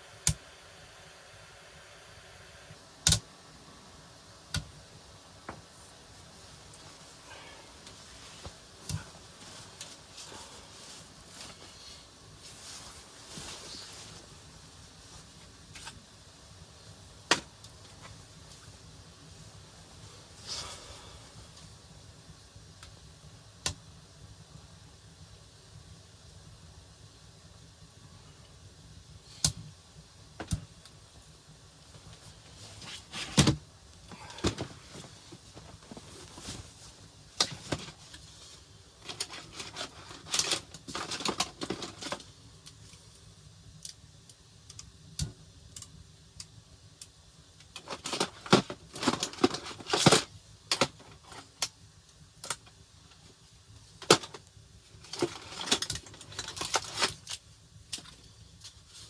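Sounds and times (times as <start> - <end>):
objects clattering when handled: 39.0 - 42.3, 47.8 - 51.5.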